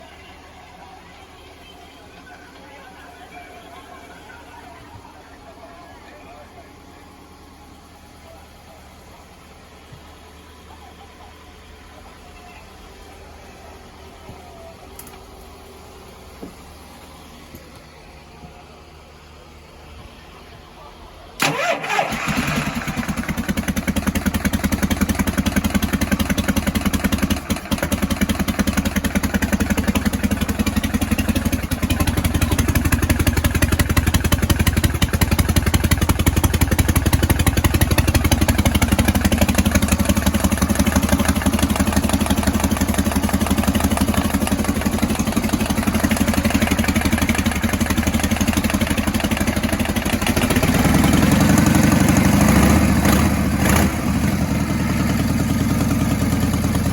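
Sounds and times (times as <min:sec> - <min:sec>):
motorcycle engine idling: 0:00.0 - 0:56.9.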